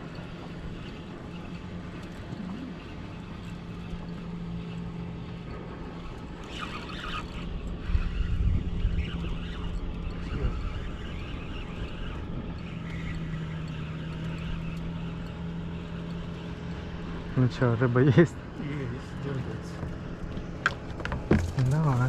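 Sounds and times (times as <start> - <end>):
outboard motor running: 0.0 - 22.0
water: 0.0 - 22.0
wind noise: 7.8 - 12.5.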